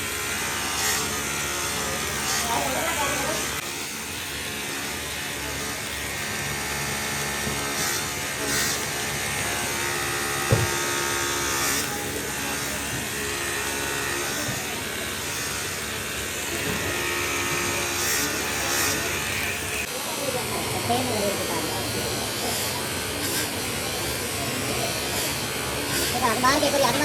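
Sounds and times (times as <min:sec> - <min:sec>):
electric motor buzzing hum: 0:00.0 - 0:27.0
sharp knock: 0:10.5 - 0:10.8.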